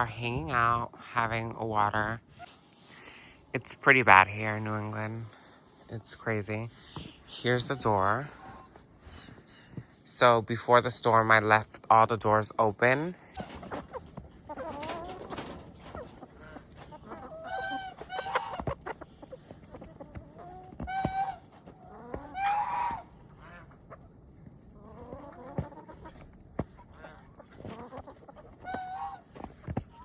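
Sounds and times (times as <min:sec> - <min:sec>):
chickens squawking: 0:07.0 - 0:08.8, 0:13.3 - 0:30.0.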